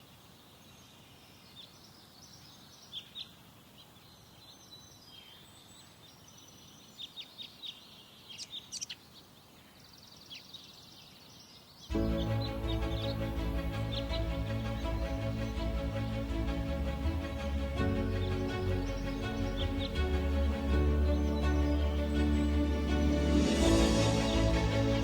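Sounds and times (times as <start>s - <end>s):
faint outdoor background: 0.0s - 25.0s
songbirds chirping and trilling: 0.0s - 25.0s
loud music: 11.9s - 25.0s.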